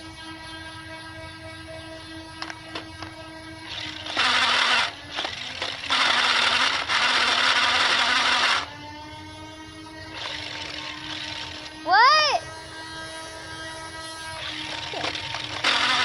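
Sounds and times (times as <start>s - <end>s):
steady hum: 0.0s - 16.0s
toy blaster rapid firing: 2.9s - 8.7s, 10.1s - 16.0s.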